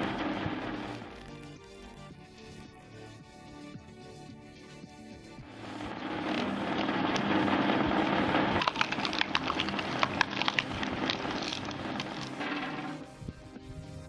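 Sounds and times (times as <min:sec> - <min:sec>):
heavy machine droning: 0:00.0 - 0:01.3, 0:05.4 - 0:13.2
wood cracking and splintering: 0:05.6 - 0:13.0.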